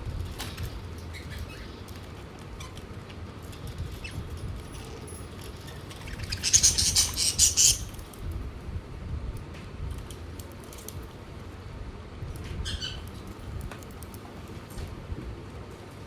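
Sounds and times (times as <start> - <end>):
budgerigars clicking and scratching: 5.9 - 8.0
harsh budgerigar chattering: 6.0 - 7.9.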